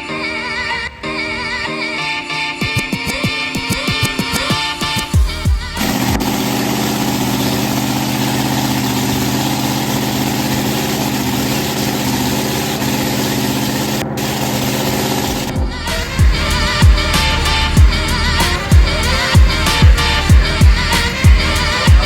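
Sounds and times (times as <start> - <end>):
background music: 0.0 - 6.7, 15.3 - 22.0
boat racing engine idling: 5.2 - 22.0.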